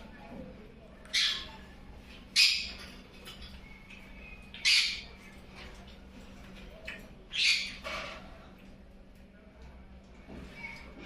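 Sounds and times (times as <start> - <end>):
parrot squawking: 1.1 - 1.6, 2.4 - 2.8, 4.5 - 5.2, 7.3 - 7.9.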